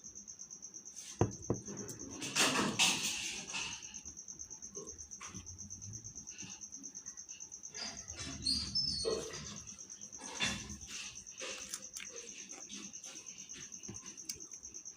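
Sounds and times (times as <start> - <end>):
cricket chirring: 0.0 - 14.9.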